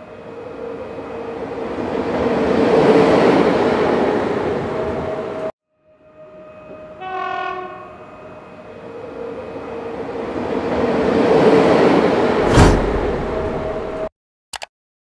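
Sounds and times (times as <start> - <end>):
diesel locomotive horn: 5.8 - 10.0
sharp bang: 12.4 - 14.1.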